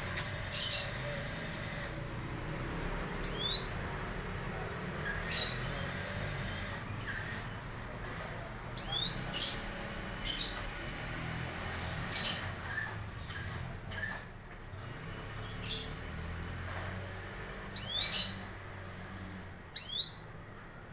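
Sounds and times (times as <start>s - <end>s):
canary calls: 0.0s - 1.9s, 5.0s - 10.7s, 17.7s - 20.2s.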